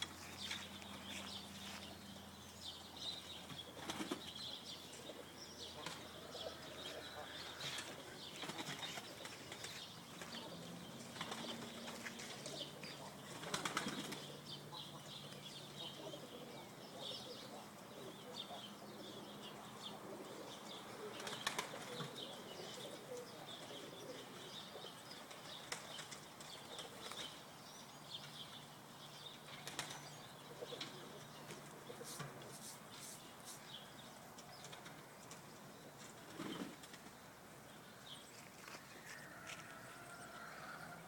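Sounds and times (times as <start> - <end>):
pigeons cooing softly: 0.0 - 38.2, 38.9 - 41.0
pigeons flapping wings: 3.8 - 4.3, 7.8 - 10.4, 11.1 - 12.6, 13.3 - 14.3, 21.2 - 22.2, 29.6 - 30.0.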